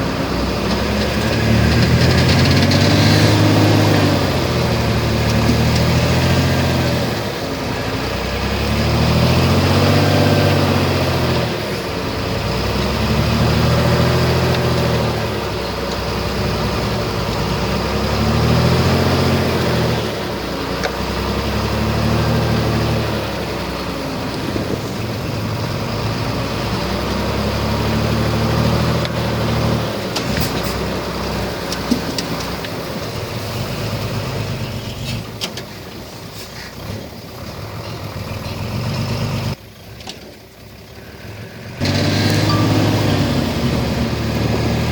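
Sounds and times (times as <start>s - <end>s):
heavy diesel engine under load: 0.0s - 44.9s.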